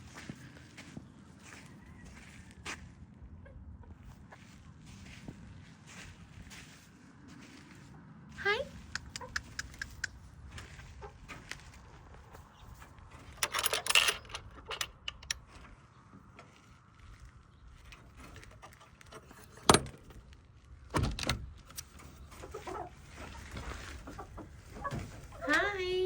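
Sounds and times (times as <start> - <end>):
jangling rattle: 13.2 - 15.6.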